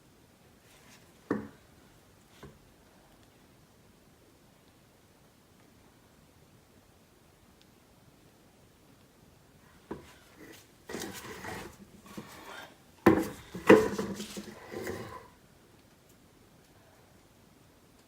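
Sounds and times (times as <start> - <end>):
scraping and rubbing: 9.9 - 15.3.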